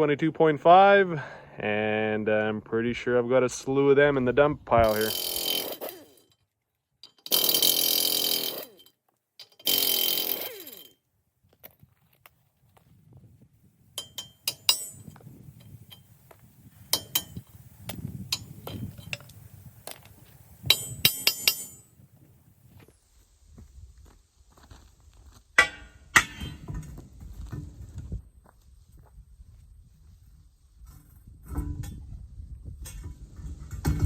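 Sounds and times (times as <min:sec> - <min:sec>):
loud rasping bursts: 0:04.8 - 0:06.2, 0:07.2 - 0:08.8, 0:09.5 - 0:10.9
metal tools clinking: 0:04.8 - 0:11.0, 0:14.0 - 0:16.1, 0:18.3 - 0:21.9.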